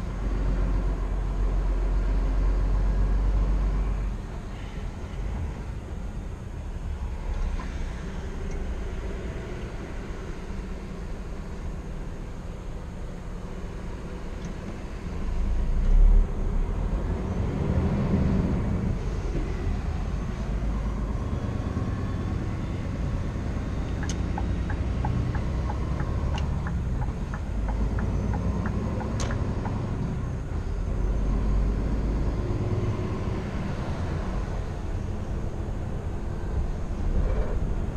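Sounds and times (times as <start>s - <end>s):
diesel truck engine rumbling: 0.0s - 37.9s
road noise inside cab: 0.0s - 37.9s
turn signal ticking: 23.8s - 30.1s.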